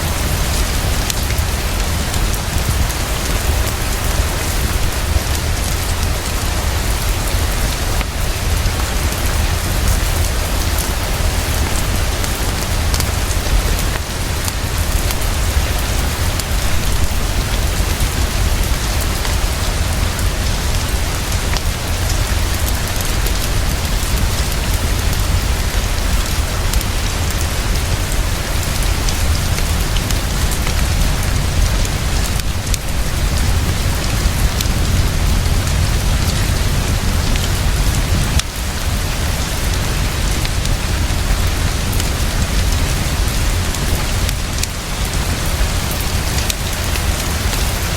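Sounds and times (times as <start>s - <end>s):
heavy rainfall: 0.0s - 47.9s
deep rumble: 14.6s - 44.5s.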